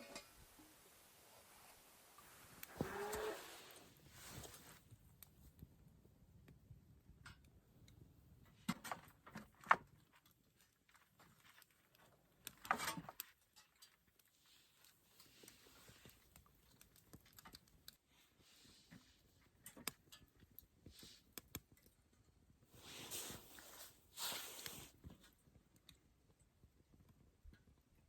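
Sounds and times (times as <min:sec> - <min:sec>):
short scrape or rustle: 0:02.5 - 0:04.8, 0:22.8 - 0:25.0.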